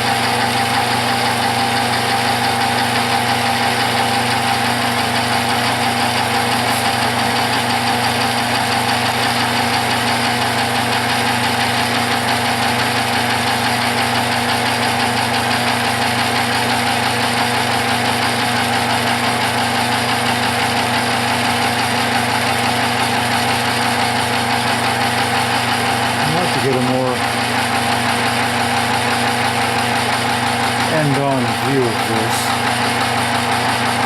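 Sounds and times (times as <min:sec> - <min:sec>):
metal lathe motor hum: 0:00.0 - 0:34.0.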